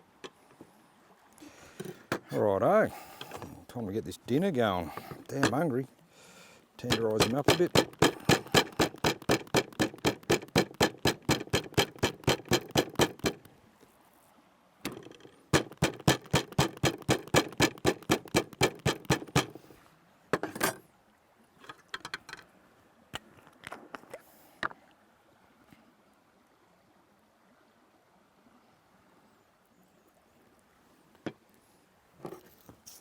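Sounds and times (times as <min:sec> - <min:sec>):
scattered knocks: 0:04.9 - 0:05.6, 0:06.8 - 0:13.5, 0:14.9 - 0:19.6
meat being pounded: 0:06.8 - 0:13.5, 0:14.9 - 0:19.6.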